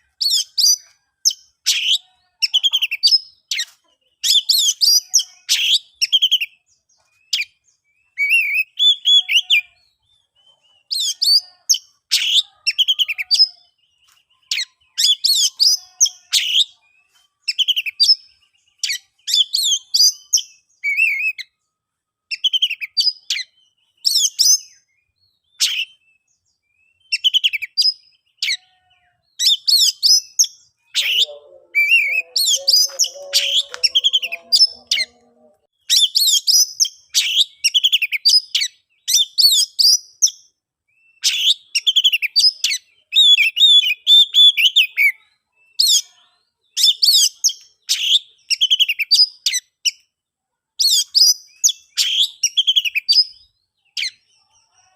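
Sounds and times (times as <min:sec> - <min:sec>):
bird singing whistled phrases: 0:07.3 - 0:10.2, 0:10.9 - 0:21.5, 0:22.3 - 0:28.6, 0:29.4 - 0:35.2, 0:50.8 - 0:54.2.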